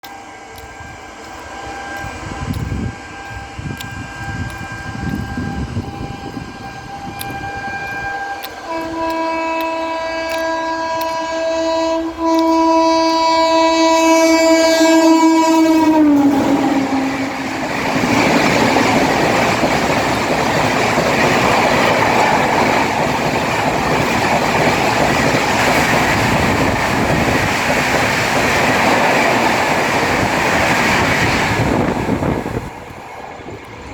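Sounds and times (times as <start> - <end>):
train coaches rushing and rattling: 0.1 - 33.9
locomotive horn blast: 0.2 - 17.8.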